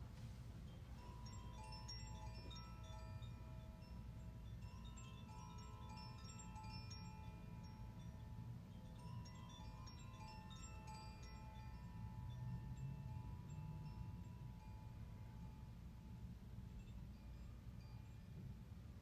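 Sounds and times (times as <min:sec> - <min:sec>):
chimes ringing: 0:01.0 - 0:15.1.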